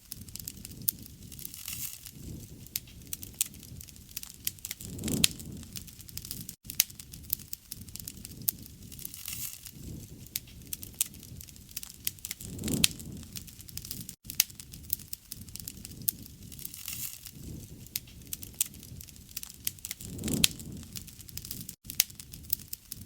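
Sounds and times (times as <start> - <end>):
wood fire crackling and popping: 0.0 - 23.0
low rushing of flame: 0.1 - 23.0.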